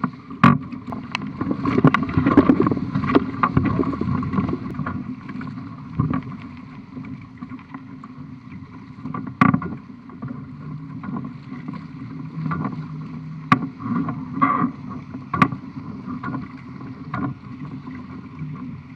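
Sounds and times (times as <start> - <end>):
sharp knocks on boat: 0.0 - 1.1, 9.1 - 9.8, 13.5 - 14.7, 15.3 - 15.6
water slapping against boat hull: 0.0 - 7.8, 8.9 - 18.9.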